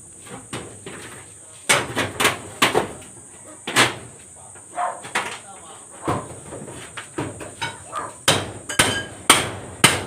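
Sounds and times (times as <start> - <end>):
hammer strikes: 7.6 - 10.0.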